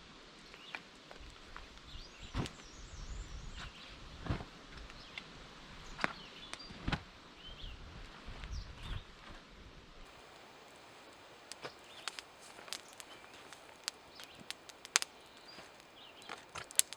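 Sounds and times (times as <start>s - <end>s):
sharp knocks or snaps: 10.1s - 16.9s
small birds chirping: 10.1s - 16.9s
steady outdoor hiss: 10.1s - 16.9s.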